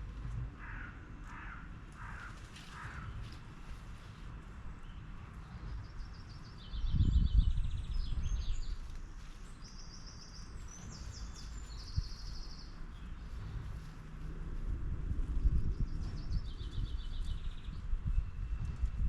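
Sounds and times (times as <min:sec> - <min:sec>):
songbirds trilling: 0:04.8 - 0:13.9, 0:15.6 - 0:18.2
low rumble: 0:10.6 - 0:19.0.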